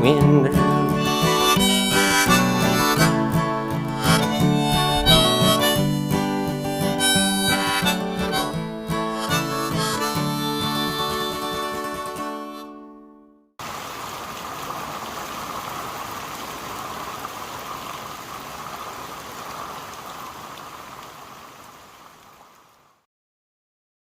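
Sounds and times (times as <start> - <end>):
heavy rain hissing: 13.6 - 23.0.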